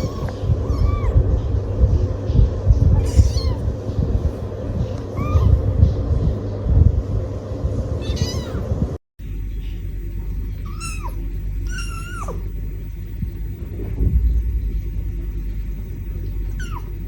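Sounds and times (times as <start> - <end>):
cat meowing: 0.0 - 1.3, 2.9 - 3.7, 5.1 - 5.7, 8.0 - 8.7, 10.6 - 12.5, 16.5 - 17.0
low steady rumble: 0.0 - 17.0.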